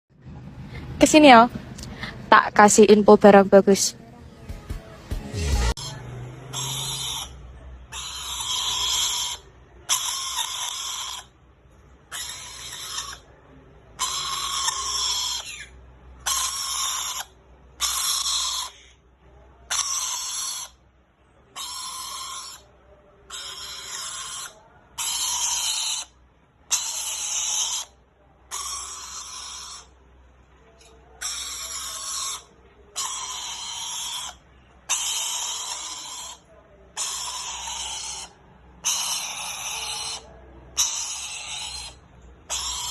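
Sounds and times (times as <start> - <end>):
parrot screeching: 5.7 - 11.4, 12.0 - 13.3, 14.0 - 19.0, 19.7 - 20.8, 21.5 - 22.7, 23.3 - 30.0, 30.8 - 42.9.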